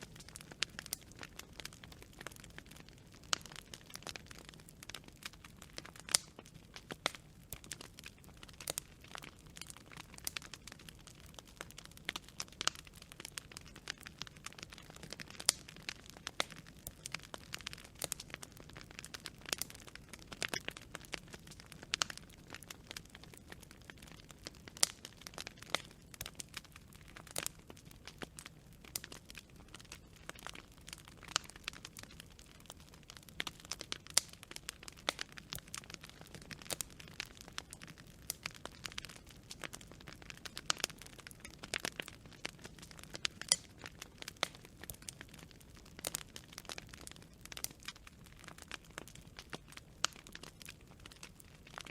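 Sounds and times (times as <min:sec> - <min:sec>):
campfire crackling: 0:00.0 - 0:51.9.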